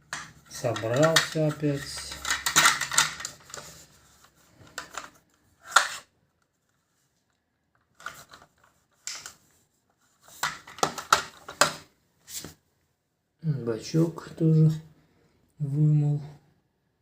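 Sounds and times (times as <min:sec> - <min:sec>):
plastic fittings clattering and clicking: 0:00.0 - 0:03.8, 0:10.3 - 0:11.8.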